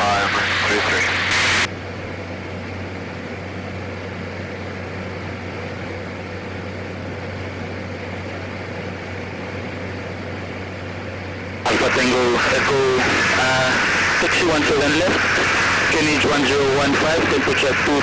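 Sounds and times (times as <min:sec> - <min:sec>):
low hum: 0:00.0 - 0:01.7, 0:11.7 - 0:18.0
aircraft cabin drone: 0:00.0 - 0:03.5, 0:11.7 - 0:18.0.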